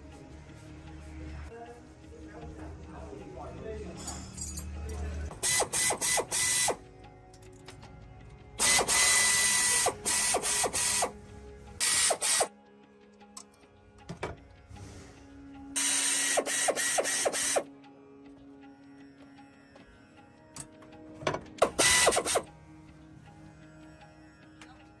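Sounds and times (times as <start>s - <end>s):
ratcheting tool noise: 15.8s - 17.6s, 21.6s - 22.4s.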